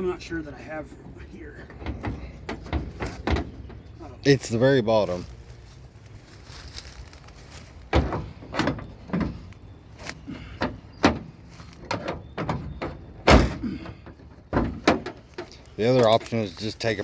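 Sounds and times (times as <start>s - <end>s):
metal car door clunks and slams: 1.6s - 3.9s, 7.9s - 9.5s, 10.4s - 15.5s.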